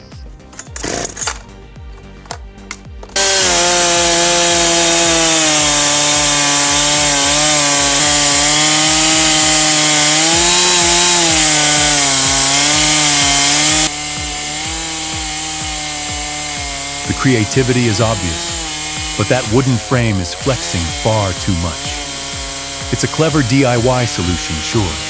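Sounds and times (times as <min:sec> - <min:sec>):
chainsaw cutting log: 0:00.0 - 0:25.0.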